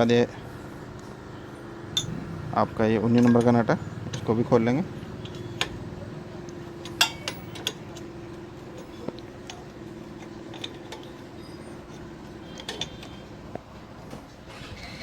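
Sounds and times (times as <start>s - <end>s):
steady low hum: 0.0s - 14.1s
metal clinks of spanner and parts: 1.9s - 2.2s, 3.1s - 5.8s, 6.7s - 13.5s.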